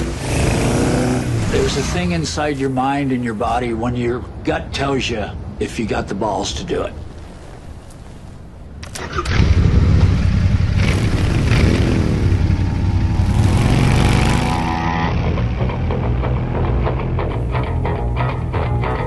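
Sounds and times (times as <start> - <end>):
motorcycle engine revving: 0.0 - 1.7, 9.0 - 16.4.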